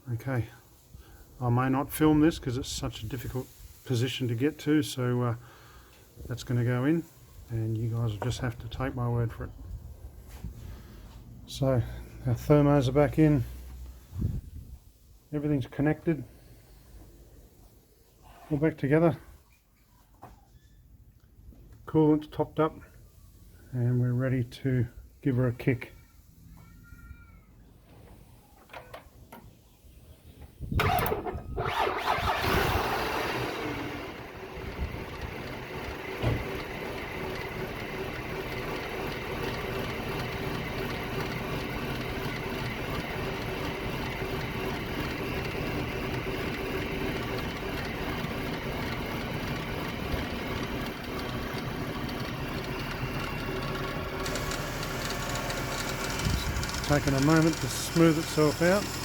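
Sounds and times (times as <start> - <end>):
car engine cranking and idling: 30.8 - 59.0.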